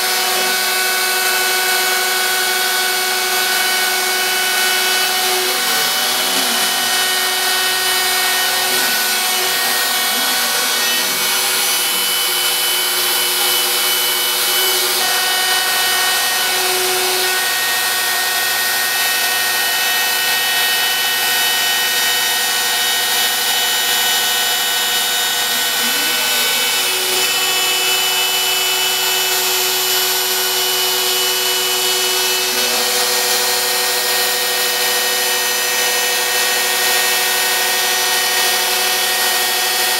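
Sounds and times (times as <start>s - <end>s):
motor whine gliding in pitch: 0.0s - 39.8s
bit cutting wood: 0.0s - 39.9s
router spindle whining: 0.0s - 39.9s.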